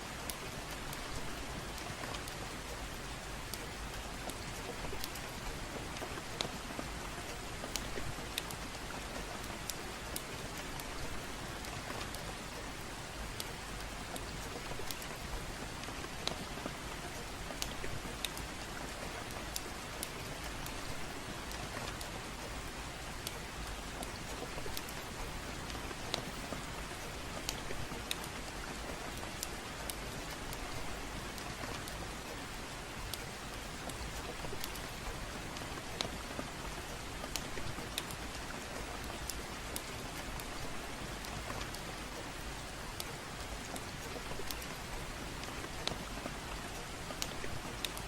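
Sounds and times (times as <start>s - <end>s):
gentle rain falling: 0.0s - 48.0s.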